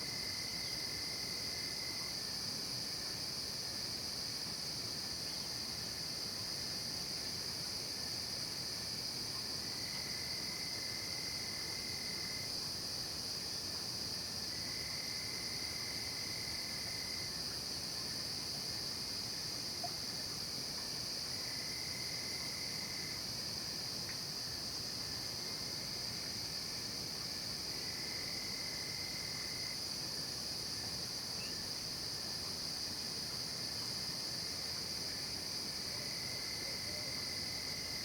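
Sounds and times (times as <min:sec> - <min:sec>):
crickets and insects chirping: 0:00.0 - 0:38.0
low insect trill: 0:27.3 - 0:29.8.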